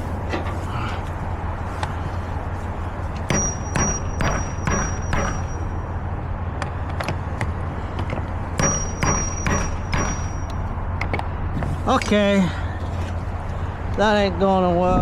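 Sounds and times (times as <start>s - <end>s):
metallic knocks on steel seal: 3.3s - 5.6s, 8.6s - 10.6s.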